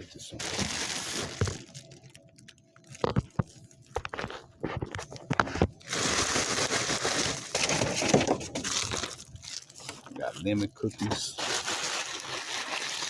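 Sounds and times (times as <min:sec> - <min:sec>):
plastic packaging crinkling: 0:00.3 - 0:13.0.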